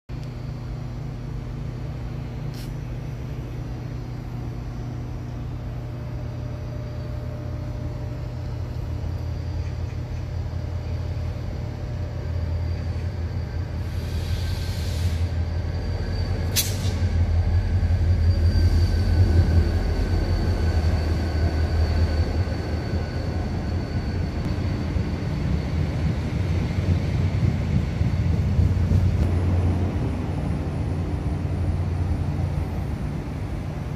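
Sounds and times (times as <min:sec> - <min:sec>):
train humming and whining: 0:00.1 - 0:33.9
air hiss: 0:13.8 - 0:15.4.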